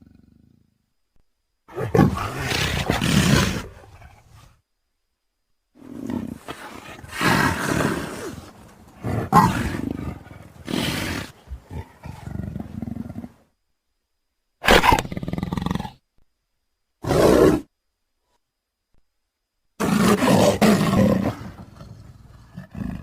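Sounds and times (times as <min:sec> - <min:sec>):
leopard roaring and growling: 0:01.7 - 0:04.5, 0:05.8 - 0:13.4, 0:19.8 - 0:23.0.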